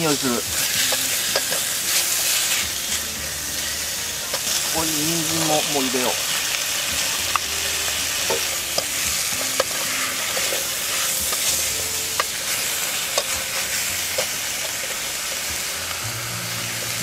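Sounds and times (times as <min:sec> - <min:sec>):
food sizzling in oil: 0:00.0 - 0:17.0
ladle scraping metal pot: 0:08.2 - 0:15.0.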